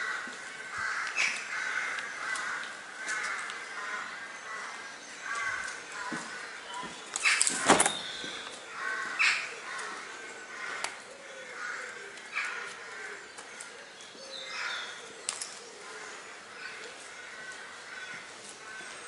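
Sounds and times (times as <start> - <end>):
harsh bird calls: 0.0 - 19.0.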